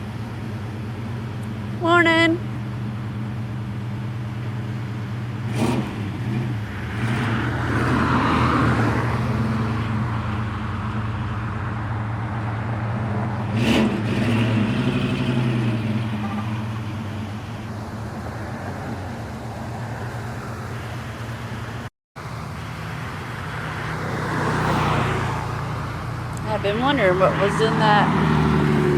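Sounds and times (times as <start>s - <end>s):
car engines humming: 0.0s - 28.9s
car driving past: 5.5s - 21.6s, 22.2s - 28.9s.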